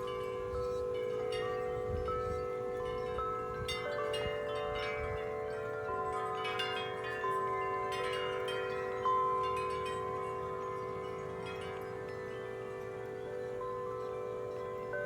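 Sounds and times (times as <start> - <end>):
strong wind: 0.0 - 5.6
metal wind chimes ringing: 0.0 - 15.0.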